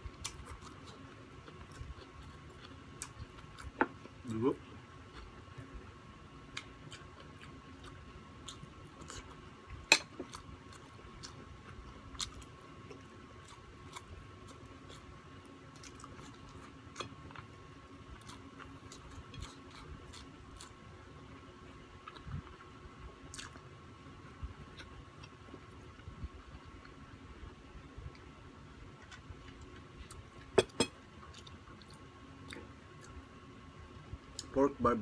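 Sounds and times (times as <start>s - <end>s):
person chewing: 0.1s - 5.9s, 6.5s - 20.8s, 22.0s - 23.6s, 29.0s - 33.2s.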